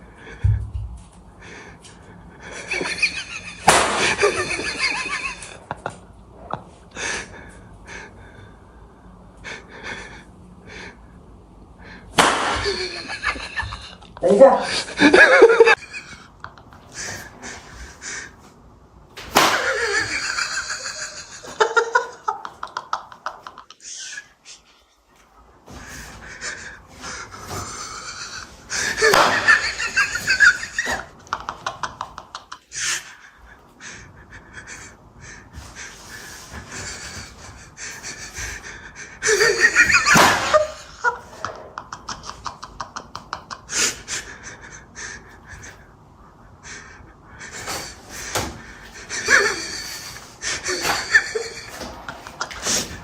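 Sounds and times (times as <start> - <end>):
people stifled laughter: 2.4 - 6.7, 12.6 - 18.3, 19.5 - 24.9, 25.8 - 45.8, 46.6 - 53.0
people gasping and breathing hard: 15.7 - 18.6, 19.3 - 41.6, 43.0 - 53.0.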